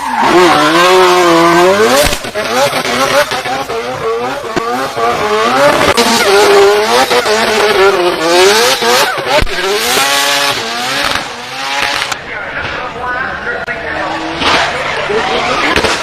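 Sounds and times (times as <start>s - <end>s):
race car engine revving: 0.0s - 16.0s
sharp cracks: 1.8s - 3.7s, 15.7s - 16.0s.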